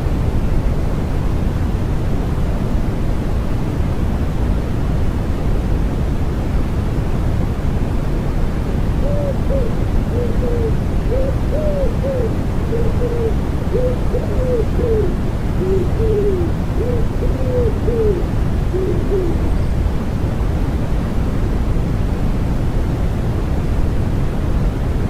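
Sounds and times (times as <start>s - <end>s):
steady white-noise hiss: 0.0s - 25.0s
wood pigeon cooing: 9.0s - 19.6s.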